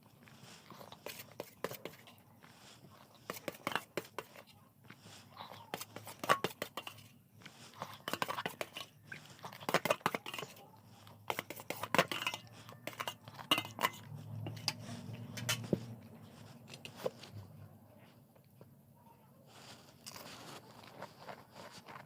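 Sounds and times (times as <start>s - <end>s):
chewing with crisp crunching: 0.0s - 18.7s, 19.5s - 22.0s.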